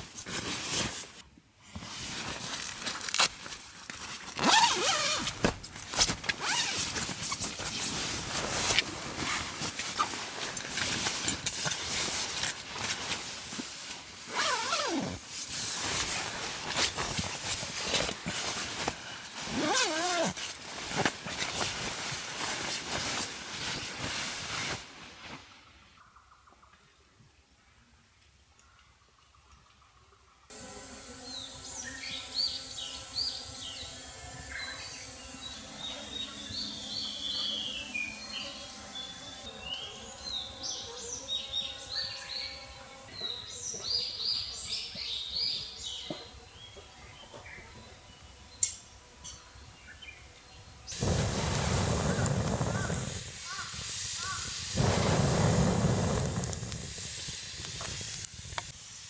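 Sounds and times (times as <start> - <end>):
dense hissing with crackles: 30.5 - 42.5, 50.9 - 59.0
songbird singing high notes: 31.2 - 42.7.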